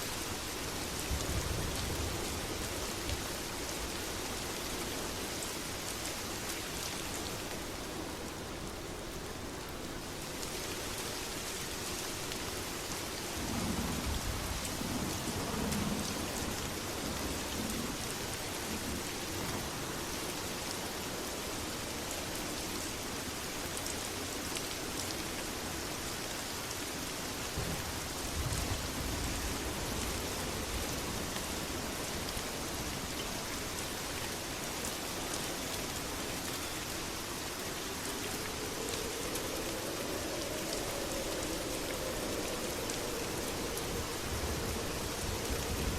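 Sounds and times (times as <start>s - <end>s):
heavy rain: 0.0s - 45.9s
thunder rumbling: 37.8s - 45.9s.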